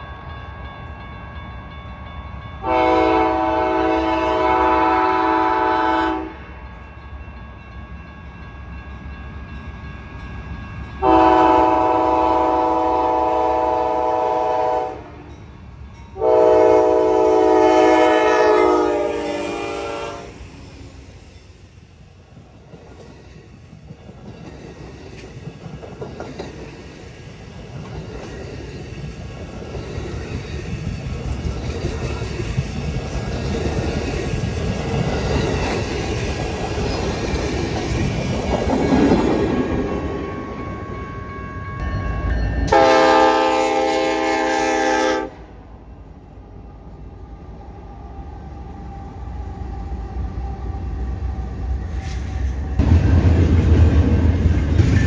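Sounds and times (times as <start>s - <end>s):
train rumble and wheel clatter: 0.0s - 55.0s
train horn blast: 2.6s - 6.4s, 11.0s - 15.4s, 16.2s - 20.4s, 42.7s - 45.5s.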